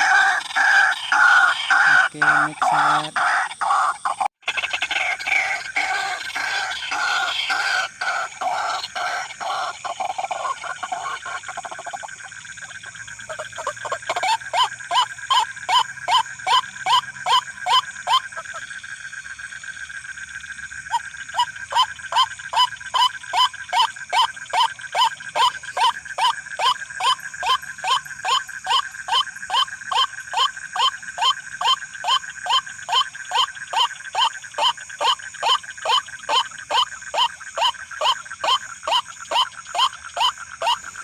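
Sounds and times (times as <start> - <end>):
bird harsh calls: 0.0 - 11.6.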